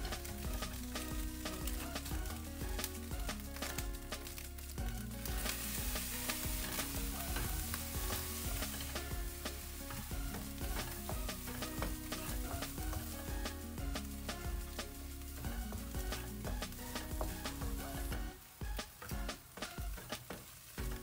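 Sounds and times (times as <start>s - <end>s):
eggs sizzling in a wok: 0.0s - 21.0s.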